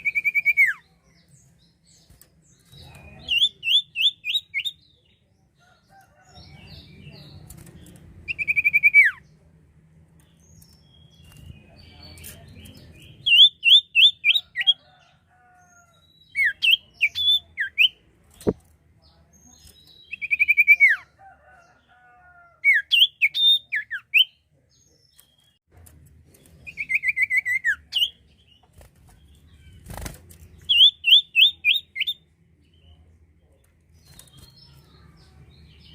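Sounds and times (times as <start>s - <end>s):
songbird singing whistled notes: 0.0s - 1.5s, 19.7s - 21.1s, 30.6s - 33.0s.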